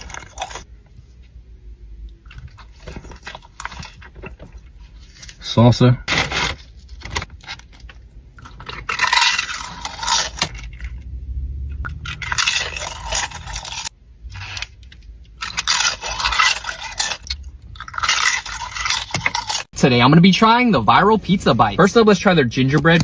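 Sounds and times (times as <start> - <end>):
crunchy chewing of food: 0.0 - 0.7, 2.1 - 5.4, 6.2 - 11.1, 11.7 - 19.7.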